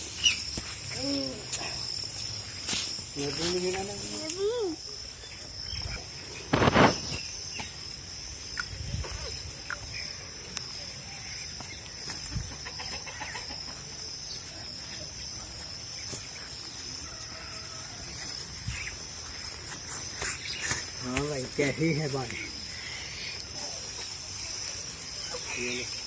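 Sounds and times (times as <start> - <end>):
crickets chirring: 0.0 - 26.0
chickens clucking: 11.4 - 14.3.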